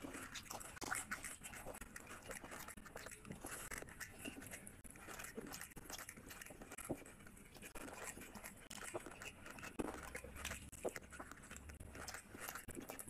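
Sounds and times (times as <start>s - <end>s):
chewing and lip-smacking: 0.0s - 13.0s
fingers squishing rice: 0.0s - 13.0s.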